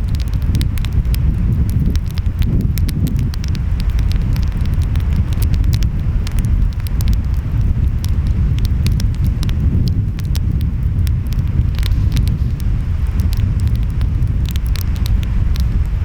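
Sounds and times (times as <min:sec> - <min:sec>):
wind: 0:00.0 - 0:16.0
wood fire crackling and popping: 0:00.0 - 0:16.0
ocean waves rumbling: 0:03.4 - 0:16.0.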